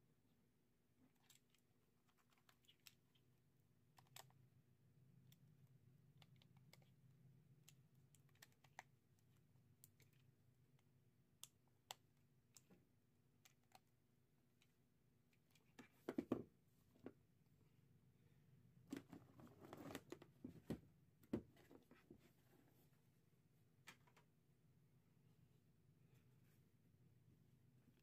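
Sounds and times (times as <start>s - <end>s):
faint small clicks: 3.9s - 4.4s.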